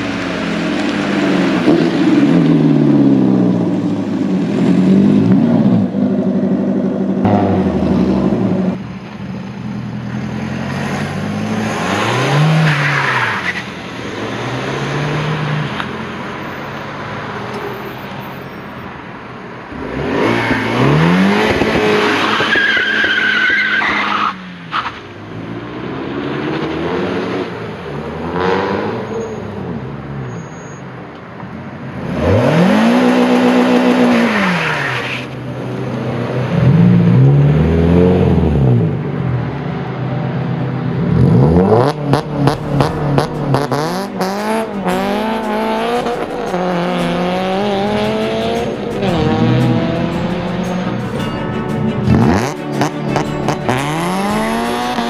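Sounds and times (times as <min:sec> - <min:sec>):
car engines revving: 0:00.0 - 0:55.0
tyre squeal: 0:30.2 - 0:30.9.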